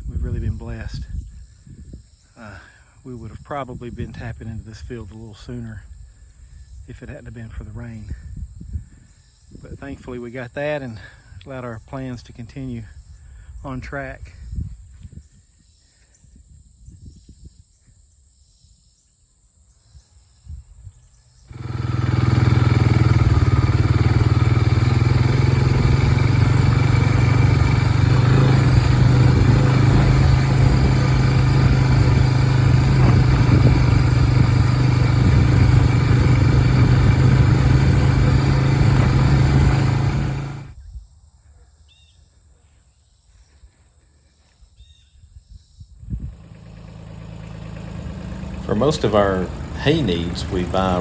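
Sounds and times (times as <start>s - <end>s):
engine humming steadily: 21.5s - 40.8s, 46.1s - 51.0s.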